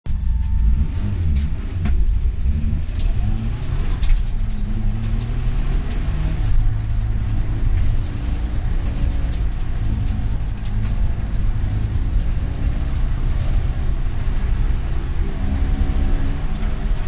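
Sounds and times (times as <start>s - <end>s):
car engine revving: 0.1s - 17.0s.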